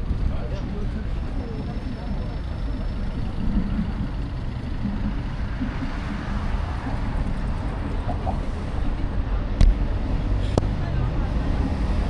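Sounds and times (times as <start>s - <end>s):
faint voices: 0.0s - 12.0s
road traffic rumble: 0.0s - 12.0s.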